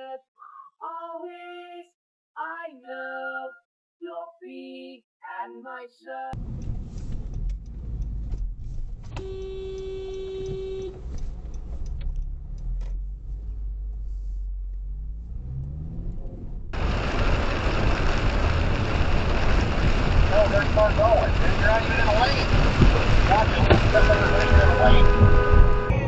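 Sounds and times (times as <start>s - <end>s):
car engine rumble and road noise: 6.4s - 26.0s
car horn: 9.2s - 11.1s, 20.6s - 26.0s
loud wind rushing on microphone: 16.7s - 26.0s.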